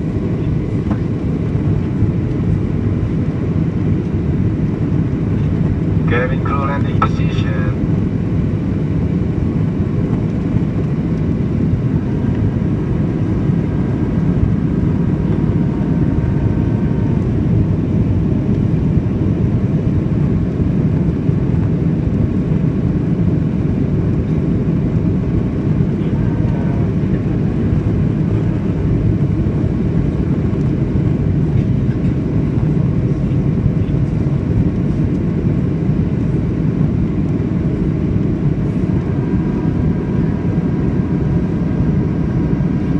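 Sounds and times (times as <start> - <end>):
faint steady whine: 0.0 - 18.7
engine rumble and rushing air: 0.0 - 42.9.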